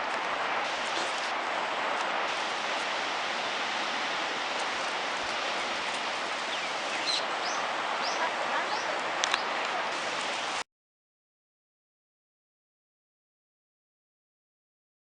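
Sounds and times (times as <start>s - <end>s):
rough surf: 0.0s - 10.6s
strong wind: 0.0s - 10.6s
bird high rising chirps: 6.5s - 8.9s.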